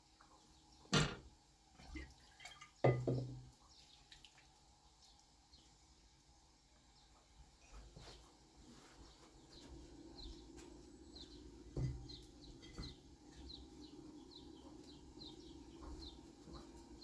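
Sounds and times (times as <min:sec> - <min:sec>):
dull knock: 0:02.9 - 0:03.4
small birds chirping: 0:03.6 - 0:06.0, 0:06.8 - 0:17.0.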